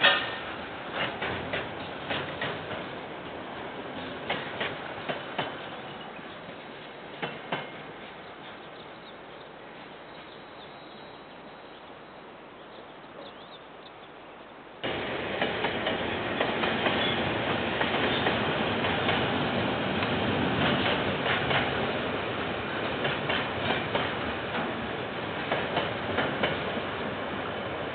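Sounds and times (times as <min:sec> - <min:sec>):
freight train wagons clattering: 0:00.0 - 0:08.8, 0:14.9 - 0:27.2.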